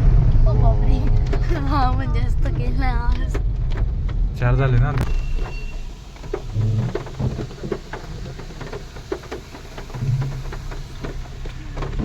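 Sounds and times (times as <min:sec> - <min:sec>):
car engine running low: 0:00.0 - 0:12.0
water splashing around car: 0:03.3 - 0:12.0.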